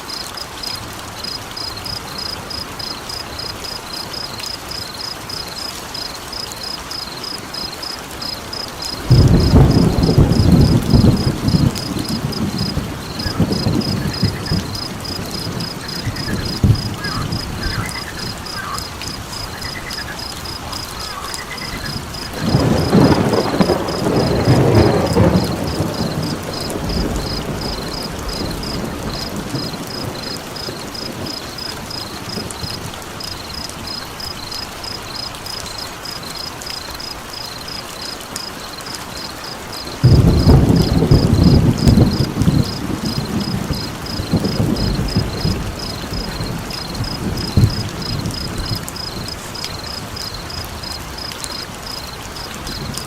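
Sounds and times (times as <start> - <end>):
crickets chirping: 0.0 - 53.0
rain-like hiss: 0.0 - 53.0
thunder rolling: 8.8 - 32.9, 40.0 - 50.8.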